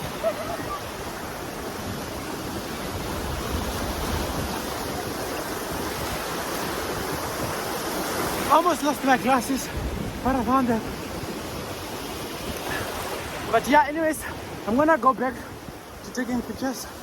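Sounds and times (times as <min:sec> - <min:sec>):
sea waves washing: 0:00.0 - 0:17.0.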